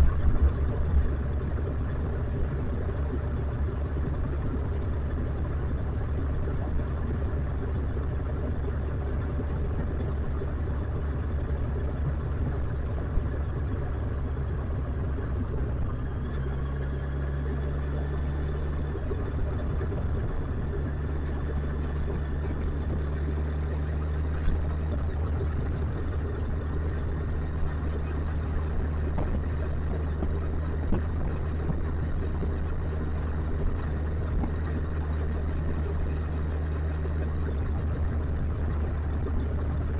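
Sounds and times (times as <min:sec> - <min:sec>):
motorcycle engine running: 0:00.0 - 0:39.9
rushing wind noise: 0:24.4 - 0:36.0.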